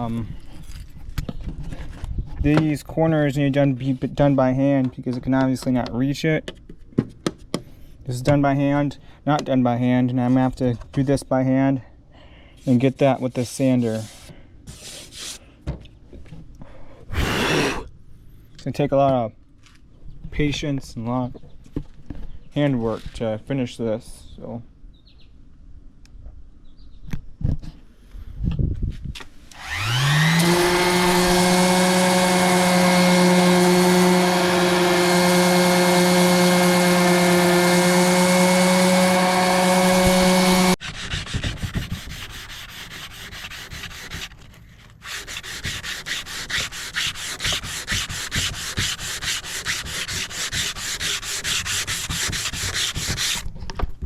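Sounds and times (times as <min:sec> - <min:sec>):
hand sanding wood: 0:12.7 - 0:15.4, 0:29.6 - 0:44.4, 0:45.0 - 0:53.4
electric sander whining on wood: 0:29.5 - 0:41.1.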